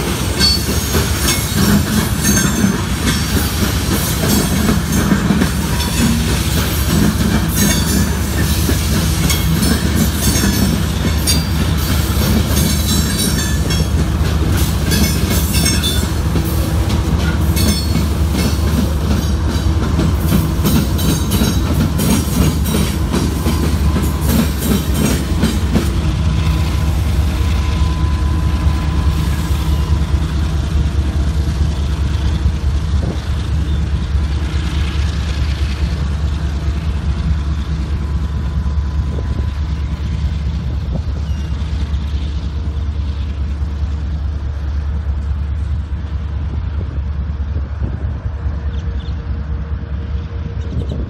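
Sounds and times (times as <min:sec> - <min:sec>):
freight train rumbling: 0:00.0 - 0:51.0
wind buffeting the microphone: 0:38.3 - 0:41.9, 0:45.6 - 0:51.0.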